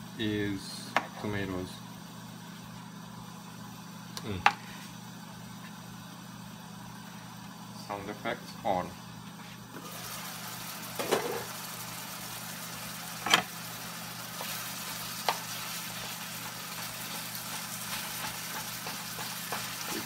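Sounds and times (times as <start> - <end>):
meat sizzling in a frying pan: 9.8 - 20.0.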